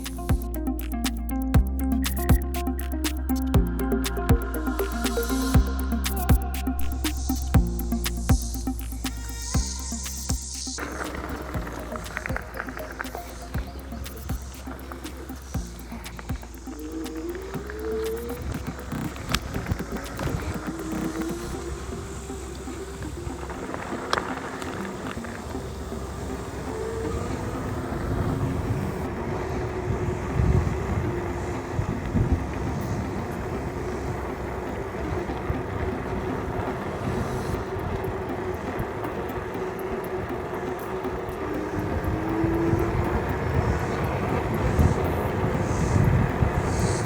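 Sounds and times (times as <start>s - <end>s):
wind on microphone: 26.6s - 40.5s, 41.1s - 47.0s.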